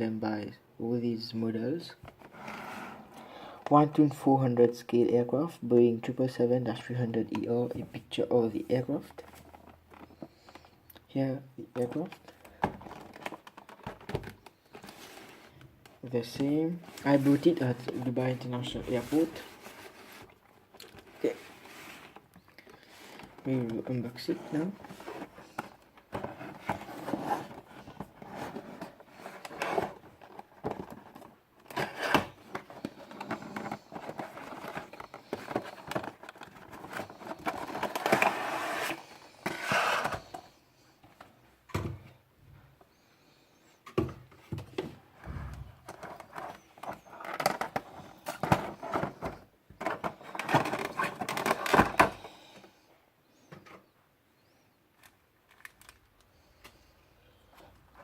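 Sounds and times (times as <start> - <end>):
packaging rustling and scraping: 11.8 - 15.7, 16.3 - 41.3, 45.8 - 52.7.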